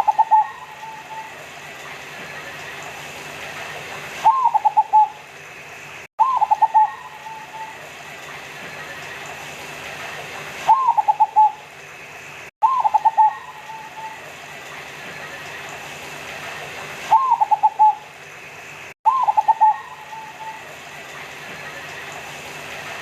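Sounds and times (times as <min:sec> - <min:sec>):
dove cooing: 0:00.0 - 0:01.4, 0:04.2 - 0:05.2, 0:06.2 - 0:07.9, 0:10.7 - 0:11.6, 0:12.6 - 0:14.2, 0:17.1 - 0:18.1, 0:19.1 - 0:20.7.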